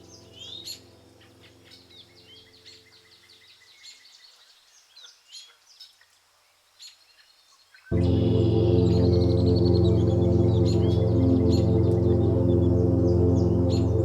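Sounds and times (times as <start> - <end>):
soft background music: 0.0 - 3.4, 7.9 - 14.0
birds chirping and singing: 6.8 - 14.0.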